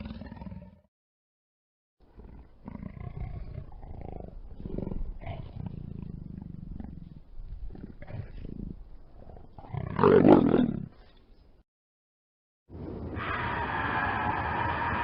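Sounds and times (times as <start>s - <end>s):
large predator growling: 2.1s - 11.0s.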